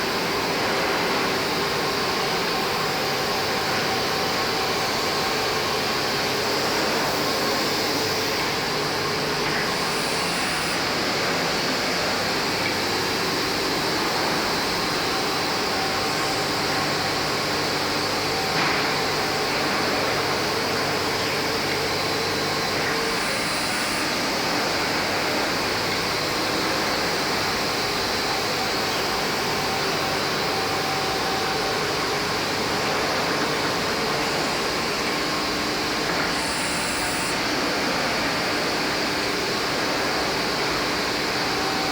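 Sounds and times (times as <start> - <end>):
sanding machine whirring hiss: 7.4 - 13.4, 33.9 - 38.0.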